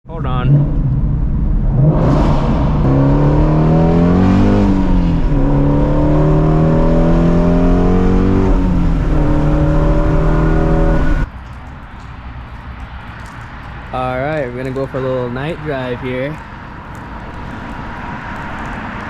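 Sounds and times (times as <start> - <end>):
car engine running: 0.1 - 11.3.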